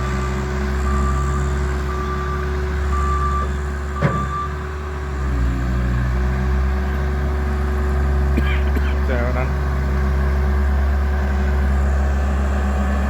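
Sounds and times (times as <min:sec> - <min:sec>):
reversing alarm beeping: 0:00.0 - 0:04.7
diesel engine running: 0:00.0 - 0:13.0.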